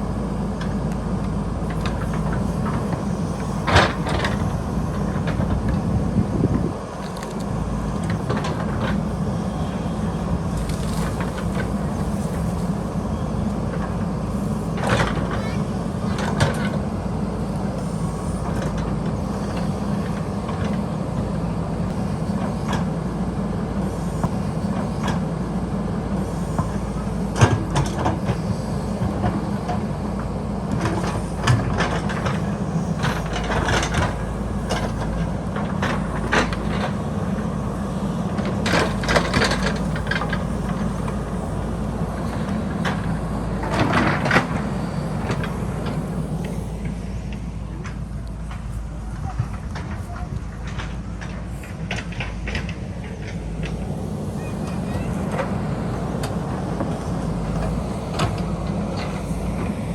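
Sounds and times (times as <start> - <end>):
diesel engine running: 0.0 - 59.9
bucket and arm clanking: 30.8 - 47.5.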